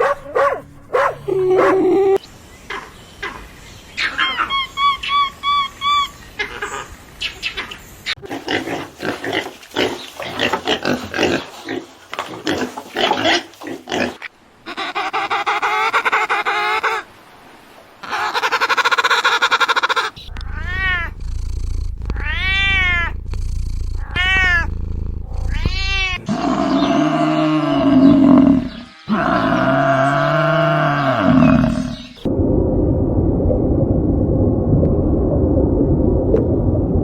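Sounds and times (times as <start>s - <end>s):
animal pitched calls: 0.0s - 11.5s, 18.0s - 32.3s
animal arching calls: 18.0s - 32.3s
deeper animal call: 18.0s - 32.3s
animal grunt-like calls: 19.2s - 32.2s
low hum: 20.2s - 26.3s, 32.2s - 37.0s.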